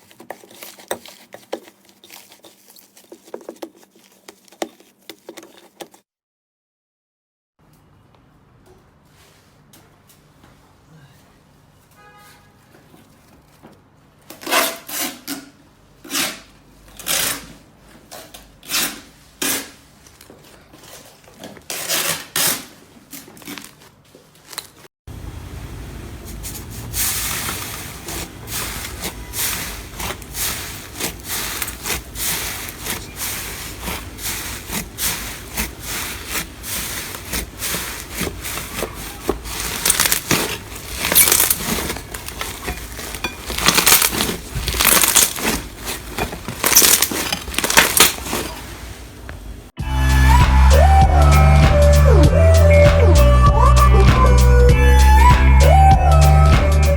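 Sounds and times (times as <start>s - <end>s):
slime crackling: 0.0s - 6.0s, 27.2s - 49.2s
slime squelching and popping: 29.9s - 48.6s.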